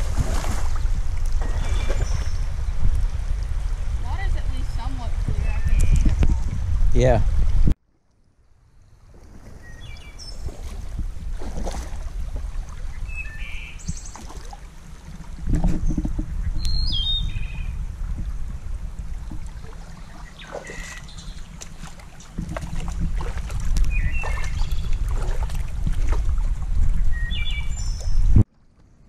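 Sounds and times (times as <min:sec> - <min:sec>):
small birds chirping: 0:05.4 - 0:06.3, 0:15.9 - 0:17.8, 0:20.0 - 0:21.6, 0:23.9 - 0:25.0, 0:27.1 - 0:28.3
steady low rumble: 0:14.6 - 0:20.4.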